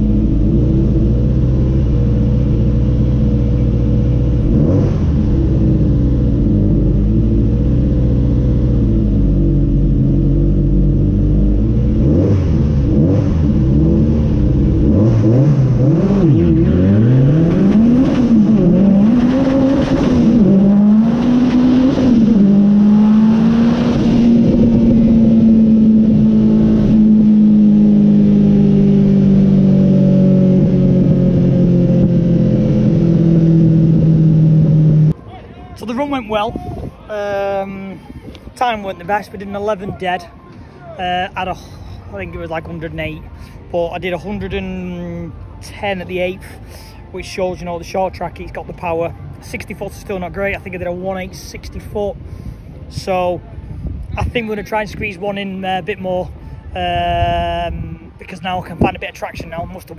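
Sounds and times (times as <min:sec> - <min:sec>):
car engines revving: 0:00.0 - 0:36.4
car engines idling: 0:00.0 - 0:54.8.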